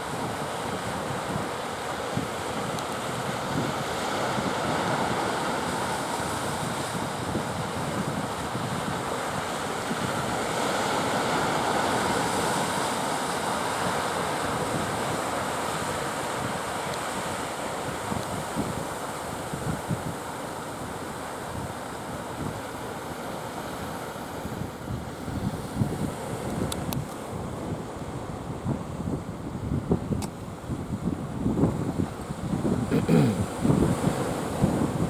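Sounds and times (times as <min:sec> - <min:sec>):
wind buffeting microphone: 0:23.7 - 0:35.0
sea surf breaking: 0:32.5 - 0:35.0.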